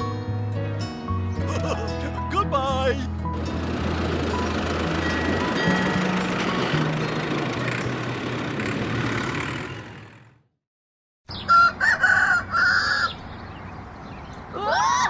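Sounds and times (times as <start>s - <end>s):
rooster crowing: 11.4s - 13.2s.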